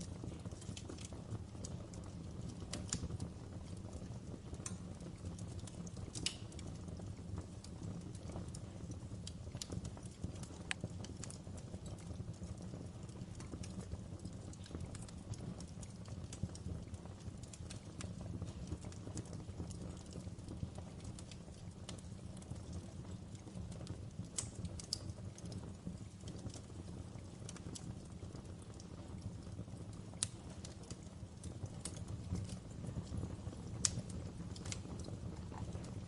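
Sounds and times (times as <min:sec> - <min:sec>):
wood fire crackling: 0:00.0 - 0:36.0.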